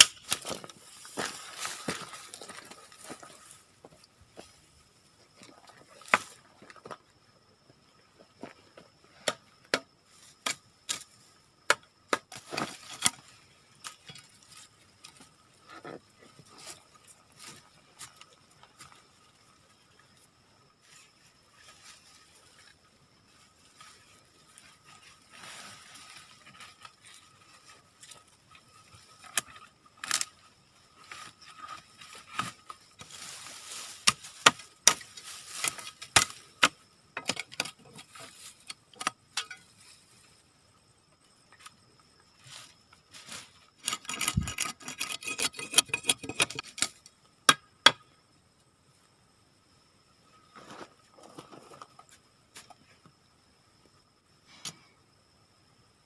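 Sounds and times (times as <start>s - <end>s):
leaves rustling: 0.0s - 3.8s, 20.8s - 29.4s, 30.0s - 36.5s, 42.2s - 43.8s.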